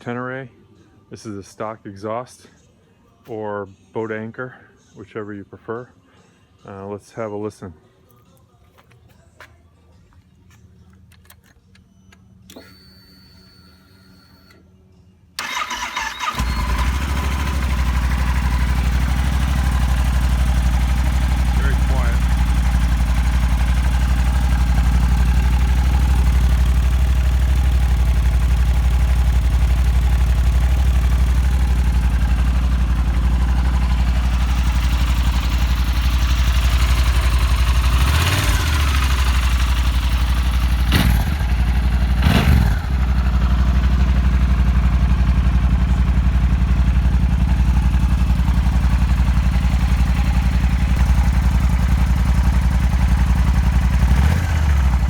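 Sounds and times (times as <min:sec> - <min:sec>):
motorcycle engine idling: 0:15.4 - 0:55.0.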